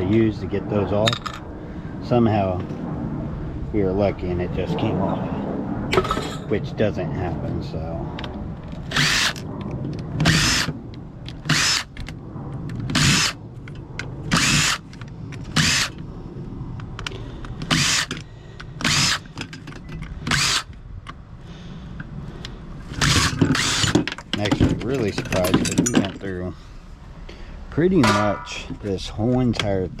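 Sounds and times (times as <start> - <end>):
power drill bursts: 8.9 - 9.4, 10.2 - 10.7, 11.5 - 11.8, 13.0 - 13.4, 14.3 - 14.8, 15.6 - 15.9, 17.7 - 18.1, 18.8 - 19.3, 20.3 - 20.7, 23.0 - 24.0.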